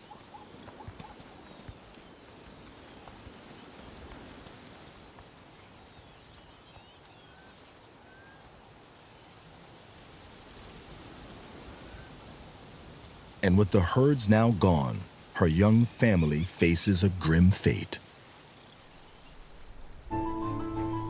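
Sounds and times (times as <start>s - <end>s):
soft outdoor hiss: 8.1s - 20.4s.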